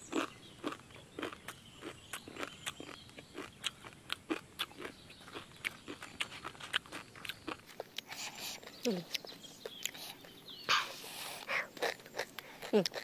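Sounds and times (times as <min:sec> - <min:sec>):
crunching and chewing: 0:00.0 - 0:13.0.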